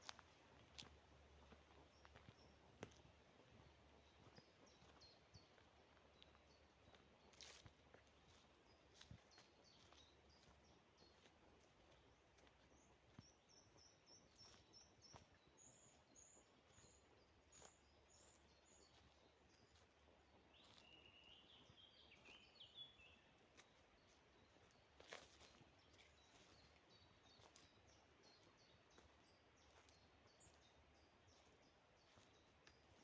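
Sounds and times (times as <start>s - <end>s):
faint birdsong: 0.0s - 33.0s.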